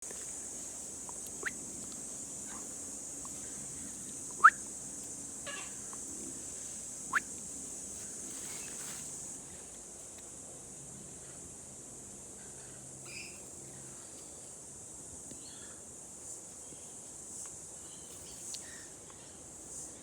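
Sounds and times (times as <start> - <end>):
rising bird whistles: 4.4 - 4.6.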